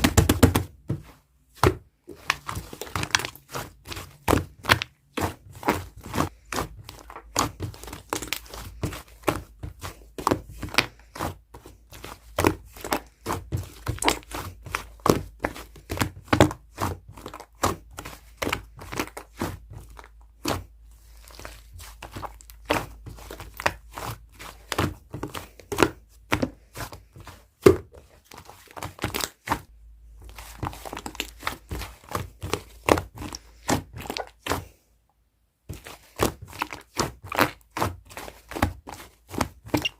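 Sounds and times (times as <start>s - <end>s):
slime being kneaded by hand: 0.0s - 34.9s, 35.6s - 39.9s.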